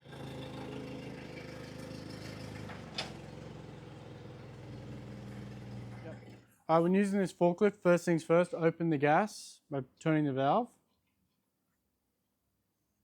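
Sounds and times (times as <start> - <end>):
engine idling: 0.0 - 6.4.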